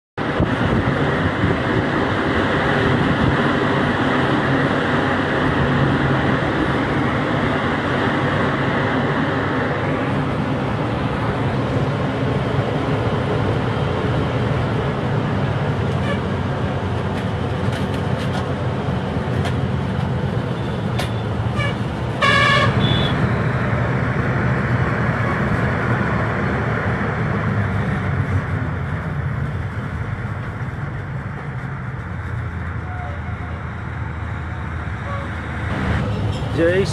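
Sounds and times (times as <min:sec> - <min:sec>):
truck engine and road noise: 0:00.2 - 0:36.9
vehicle horn: 0:16.0 - 0:16.3, 0:21.6 - 0:23.4, 0:32.8 - 0:33.5, 0:35.0 - 0:35.4.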